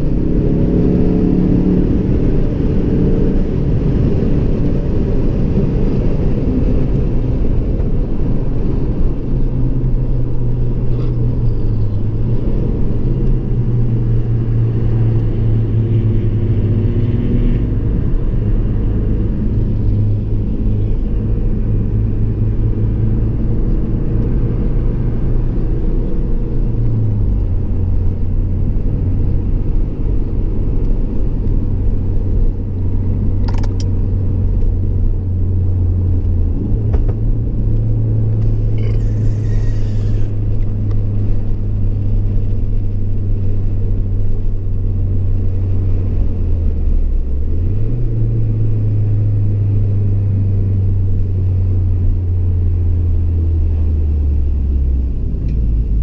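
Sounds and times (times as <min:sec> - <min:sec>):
car engine inside cabin: 0:00.0 - 0:56.0
road noise: 0:00.0 - 0:56.0
sharp click: 0:33.4 - 0:33.9.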